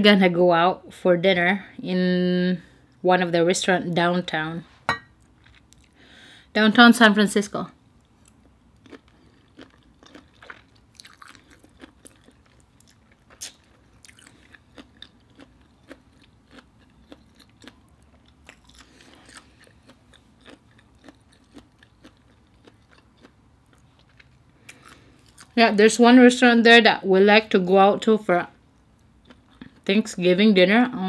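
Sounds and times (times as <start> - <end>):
chewing shrimp wet smacks: 8.2 - 25.6.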